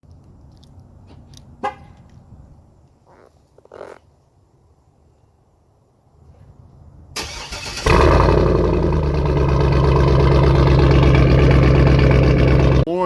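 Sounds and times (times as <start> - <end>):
engine starter cranking: 7.2 - 11.9
engine running loudly: 7.9 - 12.9.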